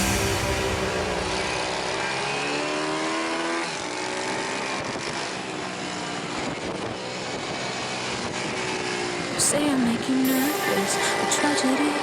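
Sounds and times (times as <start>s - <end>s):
pit bike engine accelerating: 0.0s - 9.4s.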